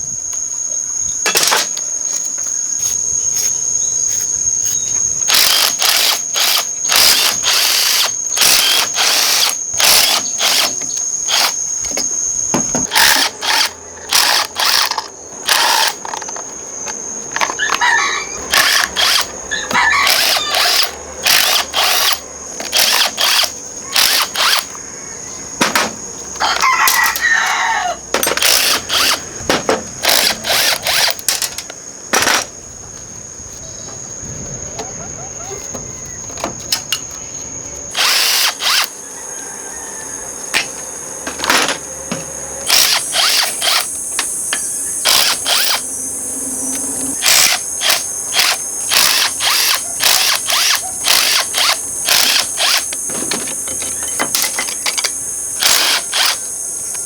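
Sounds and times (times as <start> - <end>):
insect trilling: 0.0 - 29.4, 33.4 - 57.0
rooster crowing: 17.5 - 21.2, 23.8 - 25.6, 26.4 - 28.1, 38.0 - 42.9.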